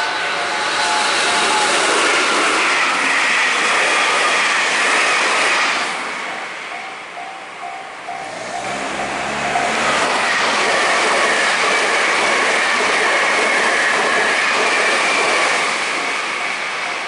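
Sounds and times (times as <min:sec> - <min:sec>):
level-crossing bell dinging: 0:00.0 - 0:01.9, 0:06.2 - 0:10.4
electric train passing: 0:00.0 - 0:17.0.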